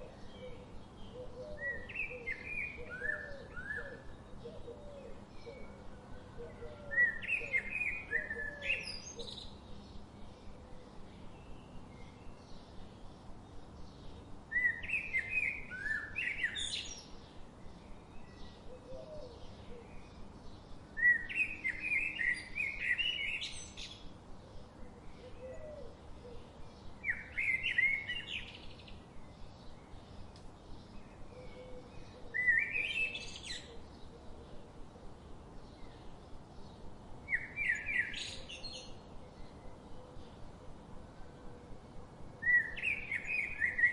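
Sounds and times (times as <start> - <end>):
faint birds chirping: 0.0 - 43.9
songbird singing short phrases: 11.2 - 24.1, 26.3 - 34.1, 35.6 - 40.4, 42.4 - 43.9.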